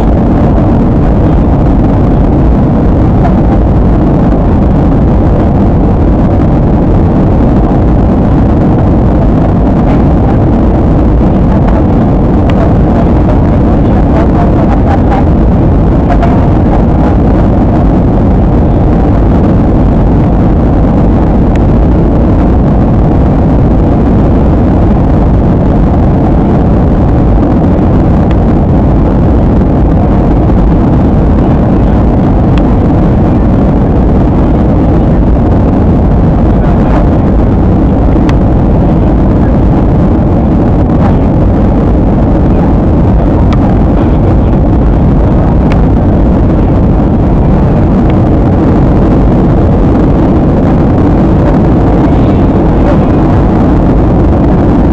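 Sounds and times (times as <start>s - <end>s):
airliner cabin rumble: 0.0s - 54.9s.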